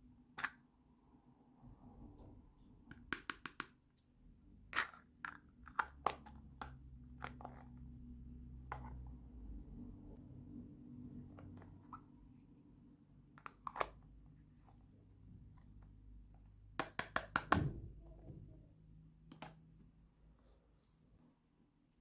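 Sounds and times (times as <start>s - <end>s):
faint low hum: 3.9s - 16.8s.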